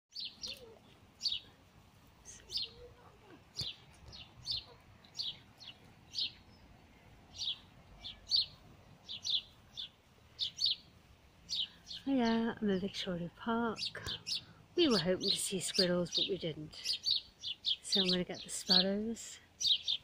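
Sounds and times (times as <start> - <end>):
sparrows chirping: 0.1 - 20.0.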